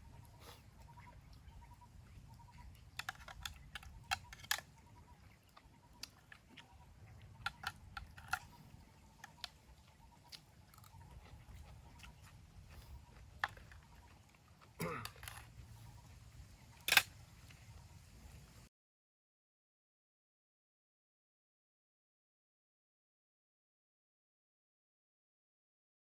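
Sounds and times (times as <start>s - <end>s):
faint clicks and crackles: 2.2s - 17.8s.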